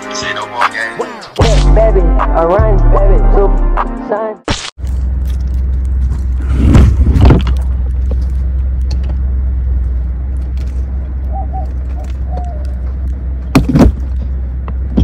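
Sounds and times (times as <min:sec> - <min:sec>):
car engine idling: 0:04.8 - 0:15.0.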